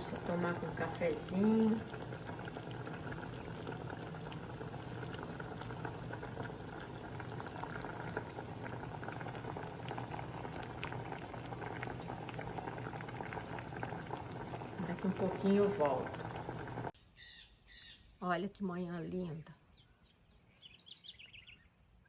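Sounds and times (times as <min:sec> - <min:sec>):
water boiling in a pot: 0:00.0 - 0:17.0.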